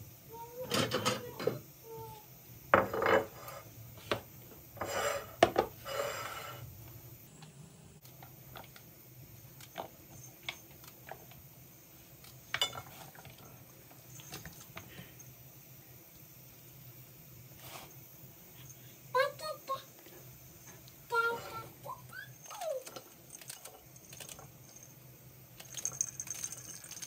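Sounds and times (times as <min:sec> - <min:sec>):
dishes and cutlery clattering: 0:00.7 - 0:01.6, 0:02.8 - 0:03.6, 0:12.6 - 0:13.2.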